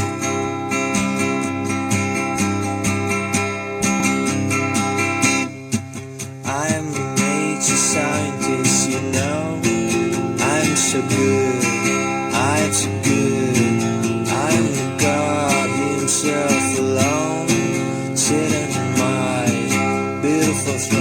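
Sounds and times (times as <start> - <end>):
strummed acoustic guitar: 0.0 - 21.0.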